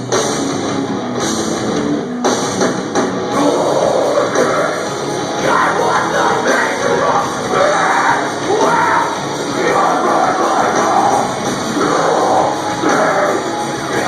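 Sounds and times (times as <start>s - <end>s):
distorted guitars: 0.0s - 14.0s
drums: 0.0s - 14.0s
person yelling vocals: 5.4s - 13.4s.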